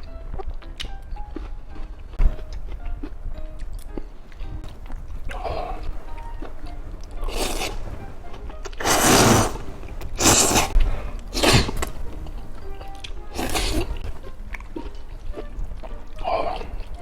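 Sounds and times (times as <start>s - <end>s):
chewing clicks: 0.4s - 5.4s, 10.0s - 17.0s
person slurping: 7.2s - 7.9s, 8.7s - 12.0s, 13.3s - 14.1s.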